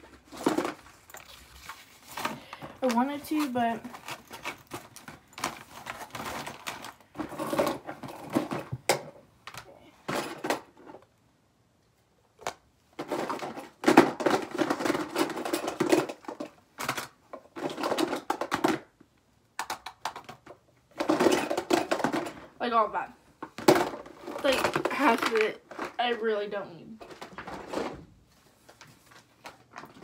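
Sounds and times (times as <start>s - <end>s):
rustling: 0.0s - 8.6s
household items clattering: 0.0s - 11.1s, 13.0s - 19.0s, 19.6s - 26.4s, 27.0s - 30.0s.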